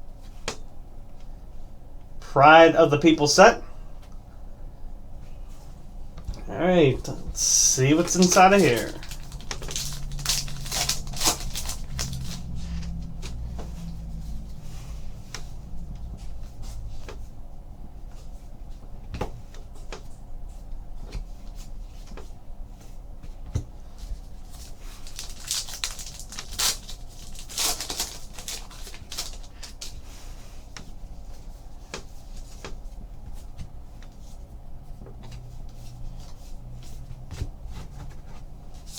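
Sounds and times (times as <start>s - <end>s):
pack wrappers crinkling and tearing: 7.6s - 12.6s, 24.5s - 29.9s
cardboard and cards clicking: 7.9s - 12.5s.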